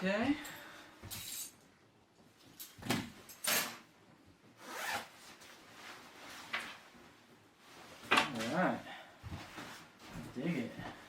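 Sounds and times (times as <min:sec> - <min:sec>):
rubbing and scuffing noises: 0:04.7 - 0:08.6, 0:09.2 - 0:11.0.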